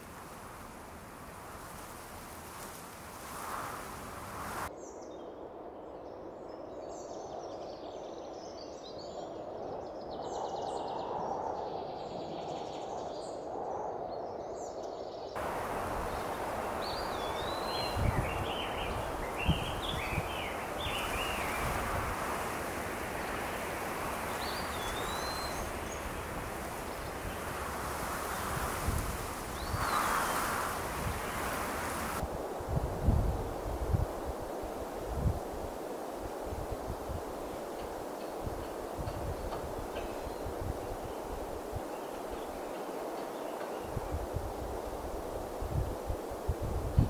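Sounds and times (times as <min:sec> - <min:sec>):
birds chirping: 0:15.4 - 0:32.2.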